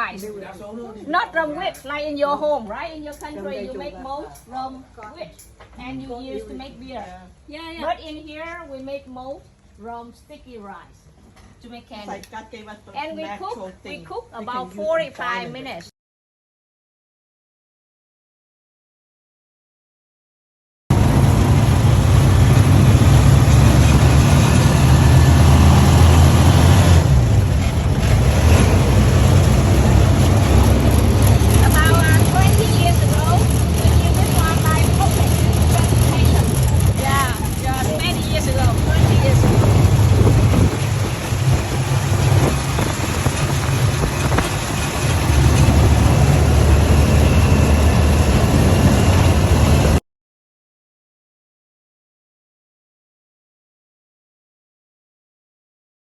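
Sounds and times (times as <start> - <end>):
loud rushing noise: 20.9 - 50.0
vehicle engine running: 20.9 - 50.0.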